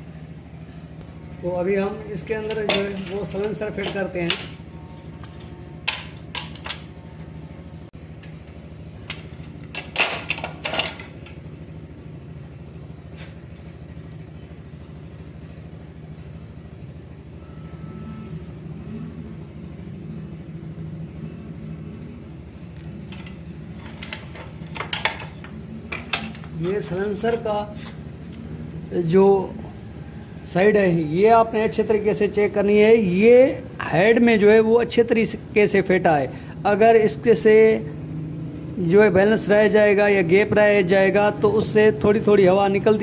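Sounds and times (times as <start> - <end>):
low mechanical hum: 0.0 - 43.0
metal clinks and clanks: 2.4 - 4.6, 9.1 - 11.8, 22.9 - 27.4.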